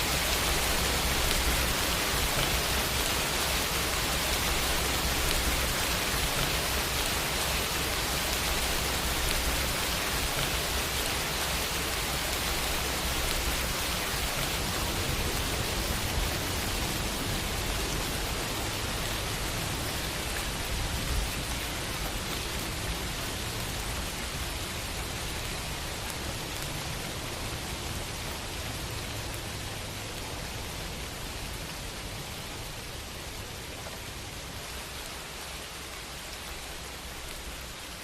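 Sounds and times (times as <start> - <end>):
rain falling on a window: 0.0 - 38.0.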